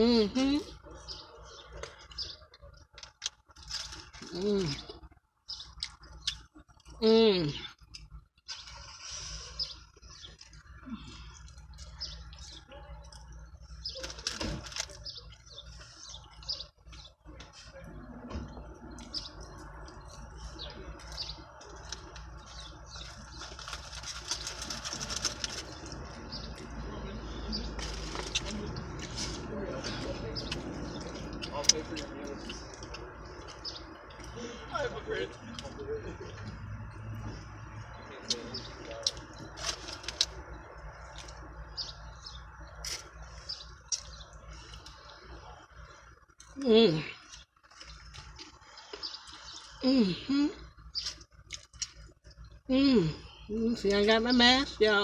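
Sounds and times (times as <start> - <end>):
small birds chirping: 0.0 - 55.0
chewing and lip-smacking: 1.6 - 7.0, 7.6 - 17.6, 18.9 - 26.8, 27.6 - 34.4, 35.3 - 46.6, 47.2 - 49.8, 50.6 - 52.6
dense crackling rustle: 21.6 - 26.3, 39.3 - 40.5.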